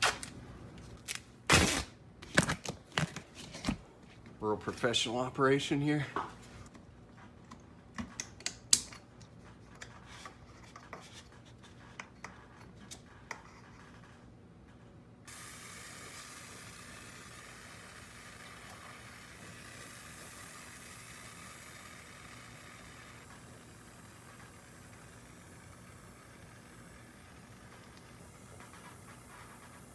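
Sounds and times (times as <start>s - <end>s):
steady hiss: 15.3s - 29.9s.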